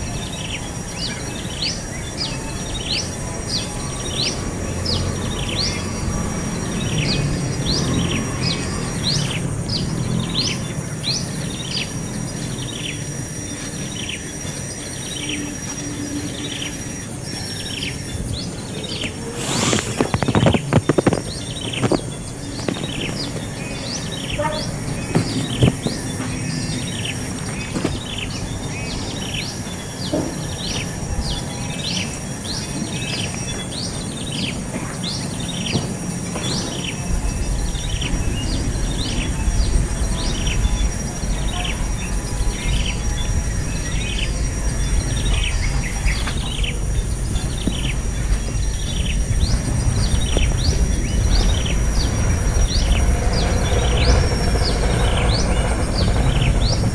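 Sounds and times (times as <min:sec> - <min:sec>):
small birds chirping: 0:00.0 - 0:56.9
low rumble: 0:37.0 - 0:56.9.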